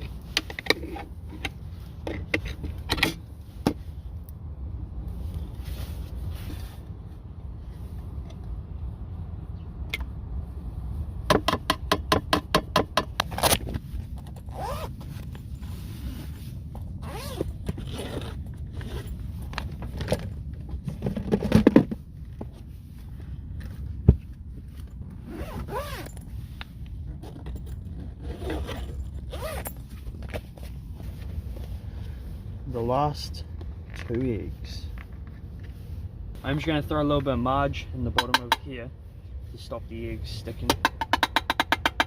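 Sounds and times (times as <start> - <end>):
low wind rumble: 0.0 - 42.0
zipper pulled open: 14.4 - 15.2, 17.0 - 19.1, 25.2 - 26.2, 27.1 - 29.9.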